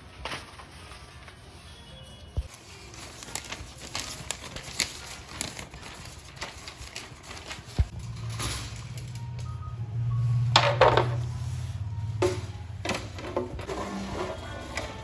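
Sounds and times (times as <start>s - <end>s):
paper crinkling: 0.0s - 9.4s.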